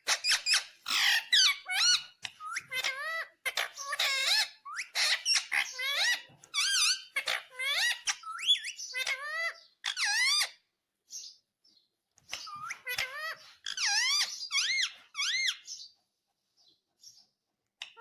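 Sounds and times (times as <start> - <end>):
parrot squawking: 0.0 - 10.7, 12.3 - 15.9, 17.8 - 18.0.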